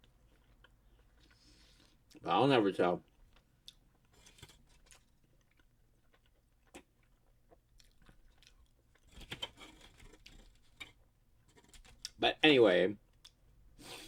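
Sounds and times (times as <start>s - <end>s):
chewing and mouth clicks: 0.0s - 2.2s, 3.1s - 9.4s.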